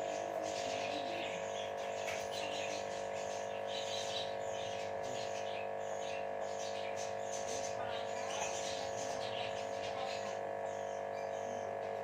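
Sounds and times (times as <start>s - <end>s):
birds chirping and twittering: 0.0s - 12.0s
steady hum: 0.0s - 12.0s.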